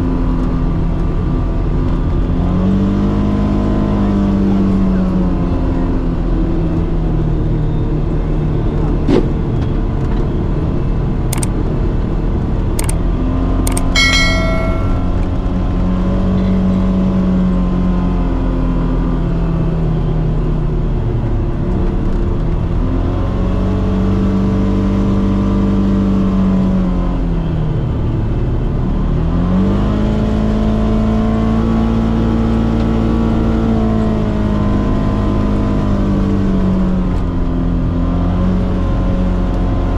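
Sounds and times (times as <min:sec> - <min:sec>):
sharp knocks and clicks: 0:13.7 - 0:15.2.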